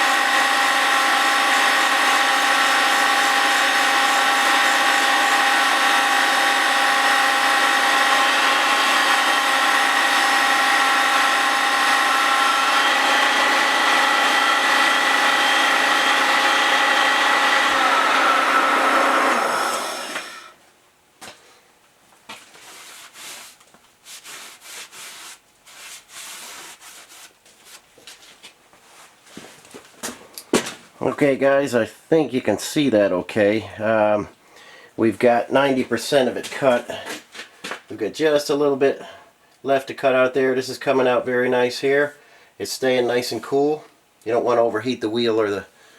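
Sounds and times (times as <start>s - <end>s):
grinding wheel whine: 0.0s - 20.6s.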